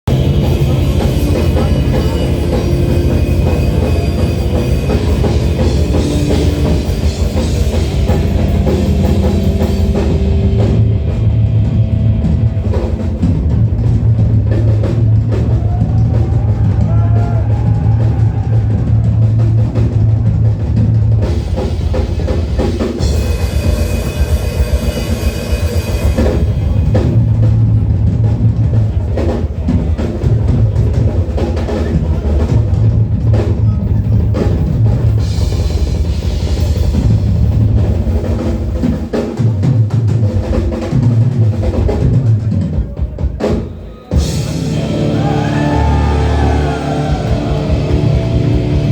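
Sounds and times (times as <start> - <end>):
steady low drone: 0.0 - 15.5, 44.5 - 48.9
bass drum and tom hits: 44.4 - 48.9.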